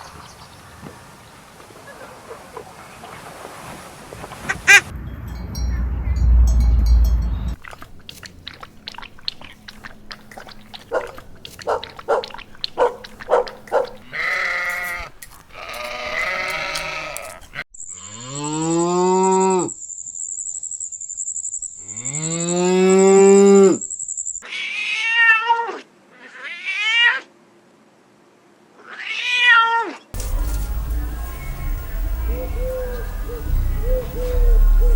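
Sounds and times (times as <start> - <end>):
higher animal cries: 11.0 - 19.7, 24.4 - 27.3
cow mooing: 13.7 - 19.7.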